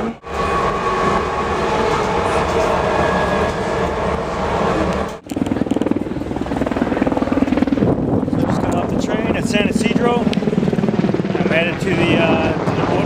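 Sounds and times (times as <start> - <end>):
trolley train rumbling: 0.0 - 6.8
fast fluttering rumble: 5.2 - 13.0.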